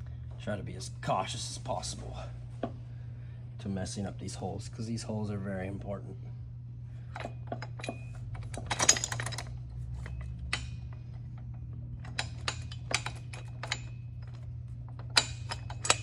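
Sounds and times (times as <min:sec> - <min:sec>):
metal bolts clinking: 0:07.1 - 0:16.0.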